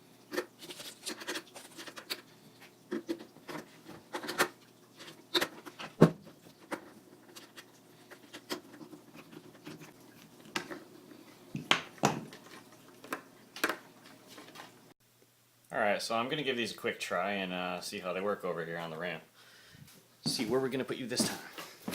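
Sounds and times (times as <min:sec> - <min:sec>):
skateboard parts and tools clicking: 0:02.9 - 0:06.0.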